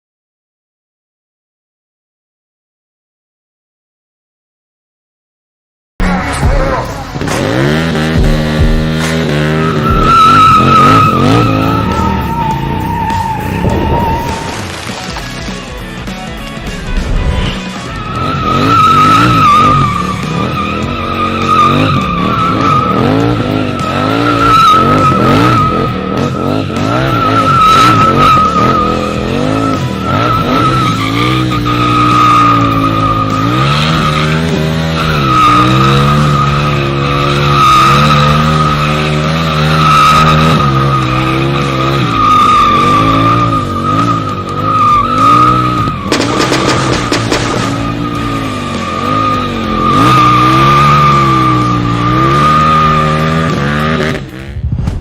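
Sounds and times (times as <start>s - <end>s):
motorcycle engine revving: 6.0s - 55.0s
tyre squeal: 9.5s - 14.8s, 17.5s - 53.6s.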